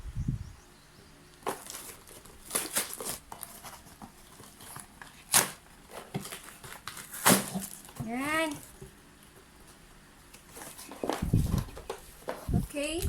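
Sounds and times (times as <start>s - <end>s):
packaging crinkling and tearing: 1.4s - 8.0s.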